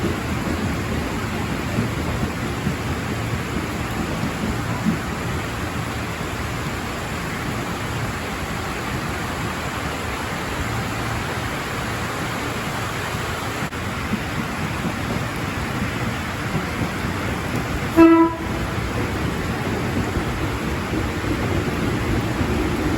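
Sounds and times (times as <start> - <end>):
heavy rain falling: 0.0 - 22.9
train horn blast: 17.9 - 18.8.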